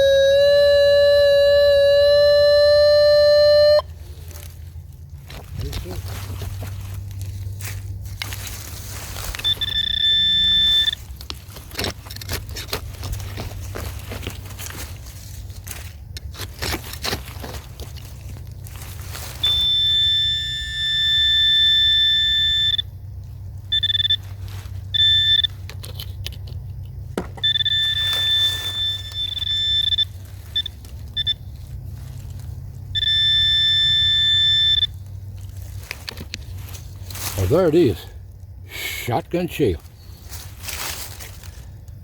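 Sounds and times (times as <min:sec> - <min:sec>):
high electronic tone: 0:00.0 - 0:03.8, 0:09.4 - 0:11.0
short beeps: 0:00.0 - 0:03.8, 0:09.4 - 0:11.0, 0:23.7 - 0:24.2, 0:25.0 - 0:25.5, 0:27.4 - 0:31.4, 0:33.0 - 0:34.9
digging in rocky soil: 0:03.9 - 0:10.0, 0:10.9 - 0:19.6, 0:35.3 - 0:38.6, 0:39.7 - 0:42.0.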